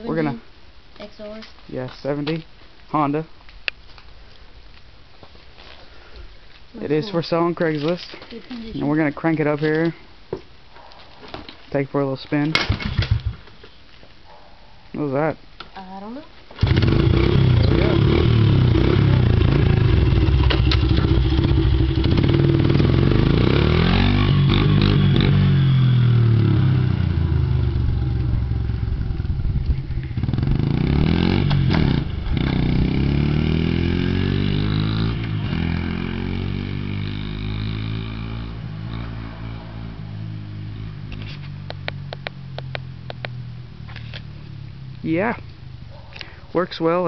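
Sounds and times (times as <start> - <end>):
dirt bike engine revving: 16.6 - 29.1, 30.2 - 41.3.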